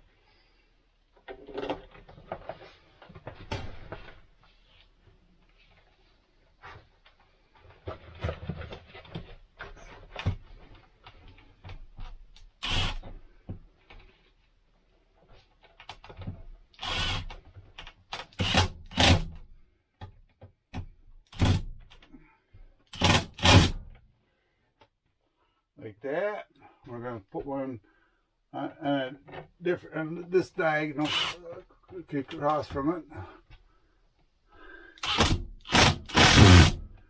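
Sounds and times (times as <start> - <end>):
knocks and clatter of parts: 1.2 - 4.3, 22.9 - 24.0, 35.0 - 37.0
cordless screw gun driving screws: 12.6 - 13.1, 16.8 - 17.4, 18.2 - 19.3, 21.3 - 21.7, 23.0 - 23.8, 31.0 - 31.5, 35.0 - 37.0.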